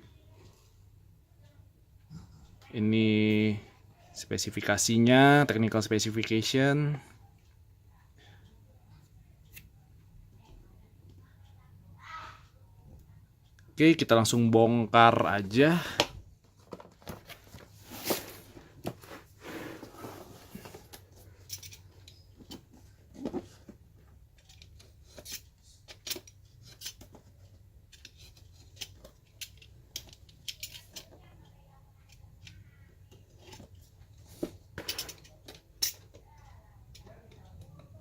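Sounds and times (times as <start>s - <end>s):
packaging scraping swishes: 17.6s - 20.9s.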